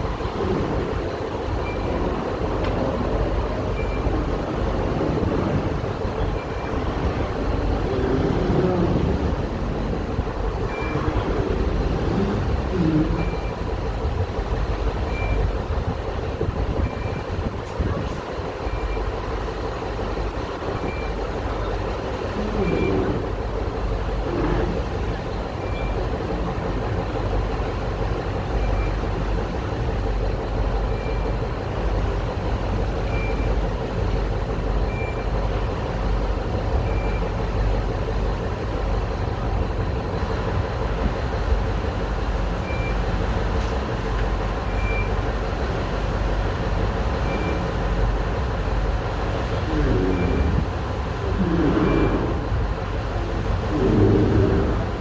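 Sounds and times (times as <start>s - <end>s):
boat engines rumbling: 0.0s - 55.0s.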